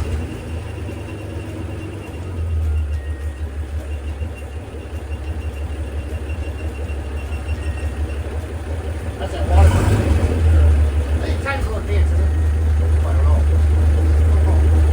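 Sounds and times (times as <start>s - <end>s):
boat engine exhaust rumble: 0.0s - 14.9s.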